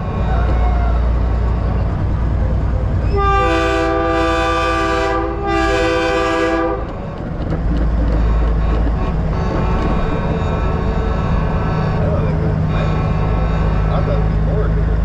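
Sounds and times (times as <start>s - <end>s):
diesel engine rumble: 0.0s - 15.0s
train horn chord: 3.1s - 7.0s.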